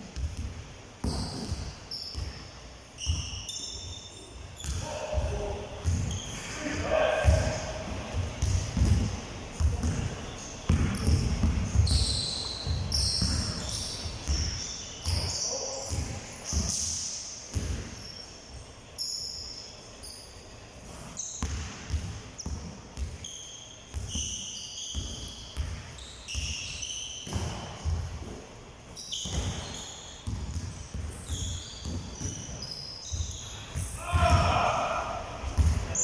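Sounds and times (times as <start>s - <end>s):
basketballs bouncing on court: 0.0s - 4.0s, 4.6s - 18.1s, 20.8s - 23.3s, 23.9s - 28.4s, 29.1s - 36.0s
high-pitched shoe squeaks: 3.0s - 4.9s, 11.8s - 15.8s, 19.0s - 20.4s, 23.2s - 27.4s, 29.0s - 30.2s, 31.1s - 33.9s.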